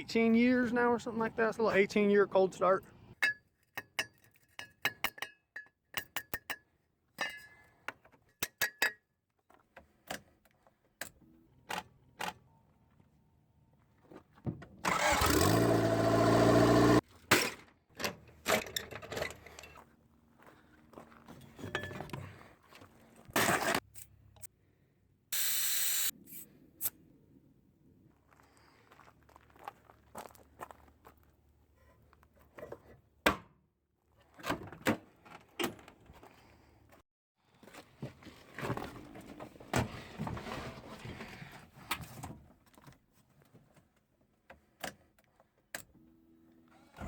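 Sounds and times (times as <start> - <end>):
engine turning over: 14.8 - 17.0.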